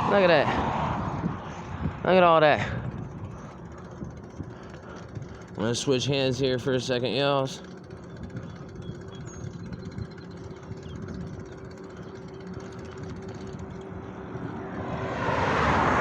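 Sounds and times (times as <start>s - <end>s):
vehicle whooshing past: 0.0s - 2.8s, 14.5s - 16.0s
highway traffic rumble: 0.0s - 16.0s.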